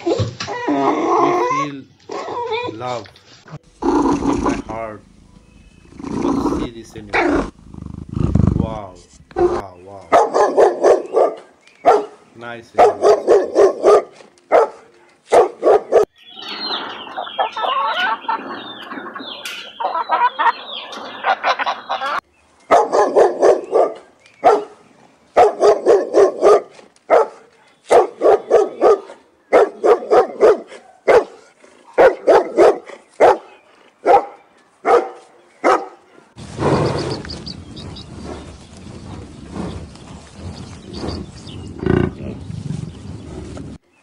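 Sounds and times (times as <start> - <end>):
many birds calling: 3.7 - 7.5, 15.9 - 25.9, 35.4 - 43.8
dog barking: 10.1 - 12.2, 12.8 - 16.1, 22.7 - 24.8, 25.4 - 36.0.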